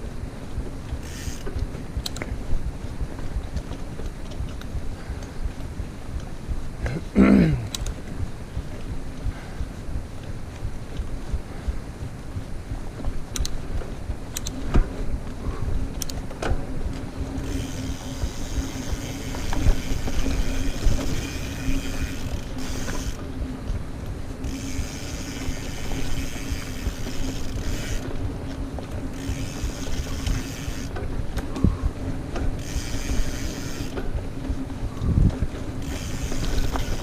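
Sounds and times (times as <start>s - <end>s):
bicycle freehub ratchet clicking: 0.9s - 2.3s, 13.3s - 13.6s, 17.2s - 23.2s, 24.4s - 28.2s, 29.1s - 34.6s, 35.6s - 37.0s.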